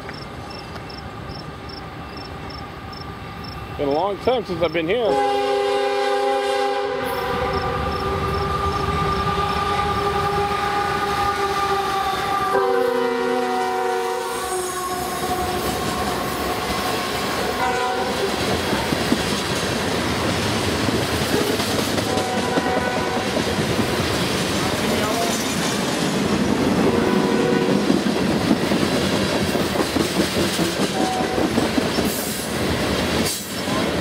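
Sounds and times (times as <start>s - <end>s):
locomotive air horn: 5.0s - 18.4s, 22.1s - 23.3s, 26.9s - 27.9s, 30.9s - 31.4s.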